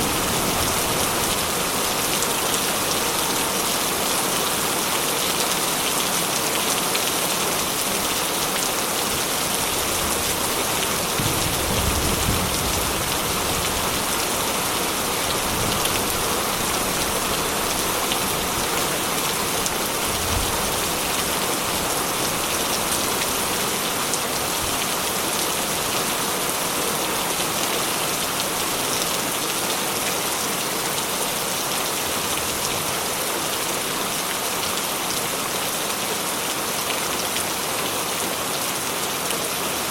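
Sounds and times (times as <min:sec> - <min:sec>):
heavy rain on metal roof: 0:00.0 - 0:39.9.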